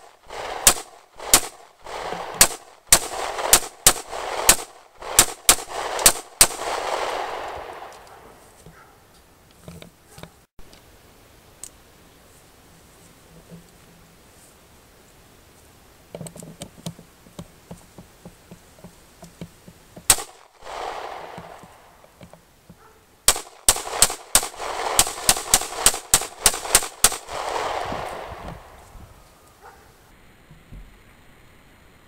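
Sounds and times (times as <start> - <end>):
pistol shots with echo: 0.3 - 8.0, 20.1 - 21.9, 23.3 - 28.8.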